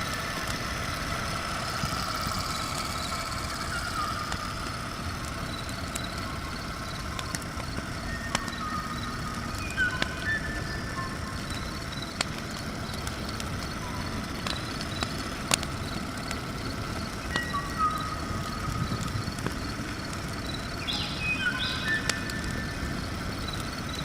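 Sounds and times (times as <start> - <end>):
low mechanical rumble: 0.0 - 24.0
sharp clicks: 0.0 - 24.0.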